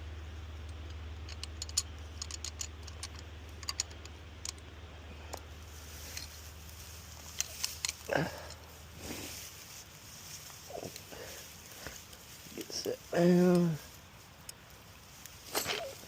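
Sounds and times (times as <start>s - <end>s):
steady low hum: 0.0s - 16.0s
metallic clicks of trap being set: 1.2s - 4.6s.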